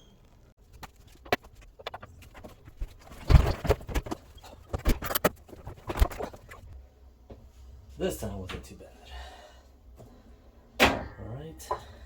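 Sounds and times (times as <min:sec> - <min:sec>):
knocks clunks and rattles: 0:01.8 - 0:06.6.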